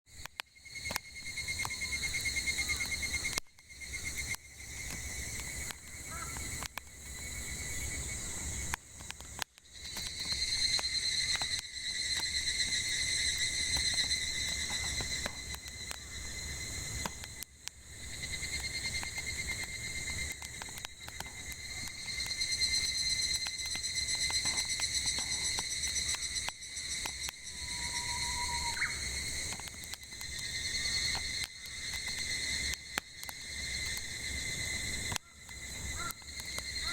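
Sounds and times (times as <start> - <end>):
cicadas buzzing: 0.1 - 36.9
firewood crackling: 0.1 - 36.9
bird call: 1.4 - 3.4, 6.0 - 6.6, 27.0 - 29.2, 35.2 - 36.9.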